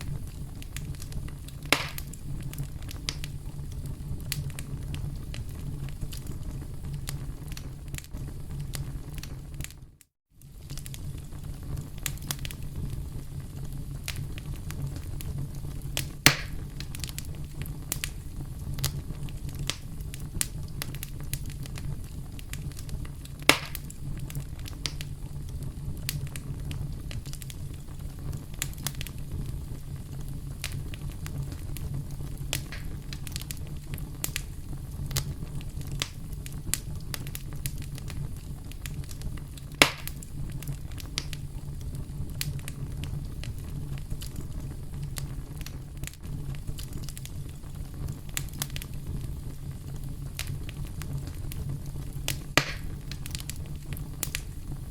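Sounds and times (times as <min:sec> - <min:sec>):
campfire crackling: 0:00.0 - 0:54.9
wood snapping pops: 0:01.7 - 0:02.1, 0:16.3 - 0:16.6, 0:23.5 - 0:23.8, 0:32.5 - 0:33.0, 0:39.8 - 0:40.2, 0:52.6 - 0:53.5.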